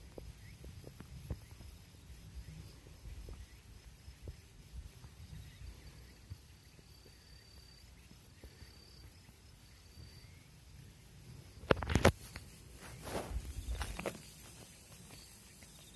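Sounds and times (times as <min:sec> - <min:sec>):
insects trilling: 0:00.0 - 0:15.9.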